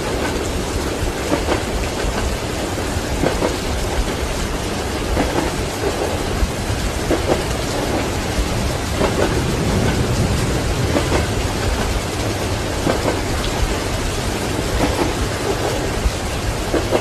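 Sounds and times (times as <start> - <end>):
heavy rain: 0.0 - 17.0
low rumble of thunder: 0.0 - 17.0
train wheels clacking on rails: 0.0 - 17.0.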